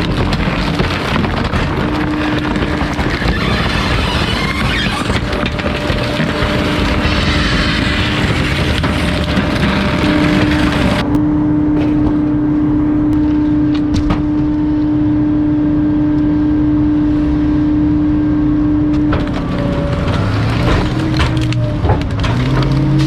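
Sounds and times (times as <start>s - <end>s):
sharp cracks: 0.0s - 11.2s
splintering crush: 0.0s - 11.2s, 18.9s - 23.0s
hydraulic compactor whining: 0.0s - 15.2s, 18.5s - 23.0s
truck engine rumble: 0.0s - 23.0s.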